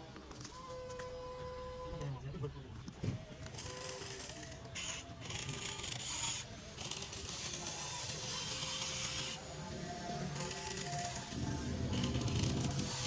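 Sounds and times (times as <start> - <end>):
faint music: 0.0 - 13.0
model excavator motors whirring: 3.4 - 13.0.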